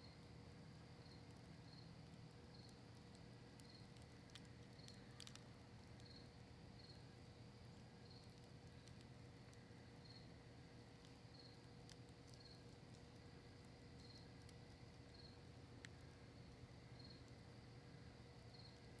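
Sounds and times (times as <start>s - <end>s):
campfire crackling: 0.2s - 19.0s
cricket chirping: 1.0s - 2.8s, 10.0s - 10.4s, 15.1s - 15.4s, 16.4s - 18.9s.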